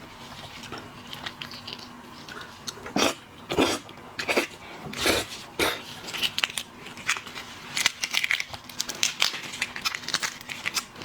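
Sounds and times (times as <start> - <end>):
shellfish shells crunching: 6.0 - 11.0.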